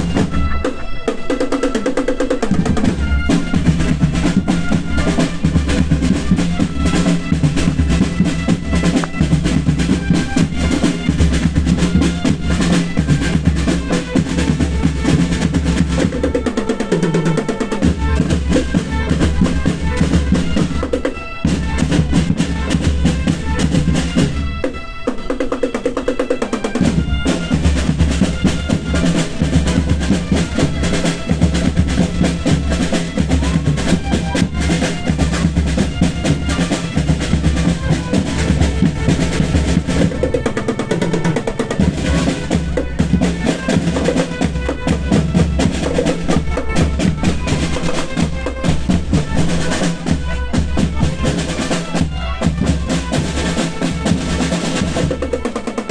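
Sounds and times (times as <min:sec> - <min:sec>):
marching band playing: 0:00.0 - 0:55.9
snare drums rolling: 0:00.0 - 0:55.9
bass drums beating: 0:02.6 - 0:16.4, 0:26.8 - 0:40.8, 0:41.4 - 0:55.2.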